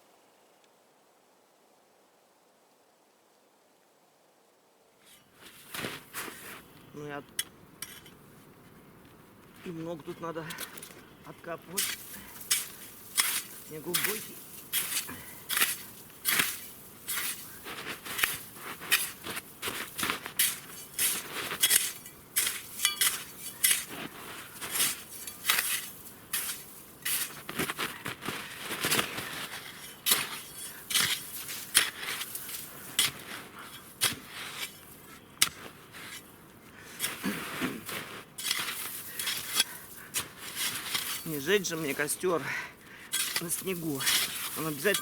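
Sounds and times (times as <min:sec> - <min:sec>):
shovel digging into snow: 0:11.7 - 0:36.3, 0:37.0 - 0:42.4, 0:43.1 - 0:45.0.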